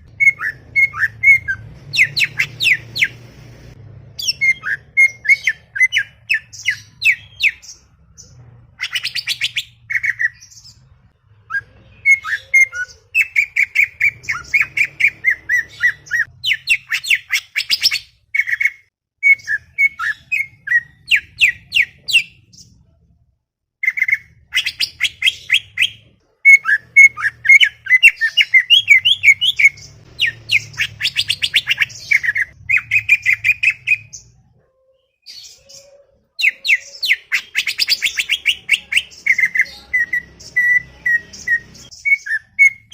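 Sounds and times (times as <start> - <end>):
bird chattering song: 23.8 - 34.4, 35.0 - 42.9.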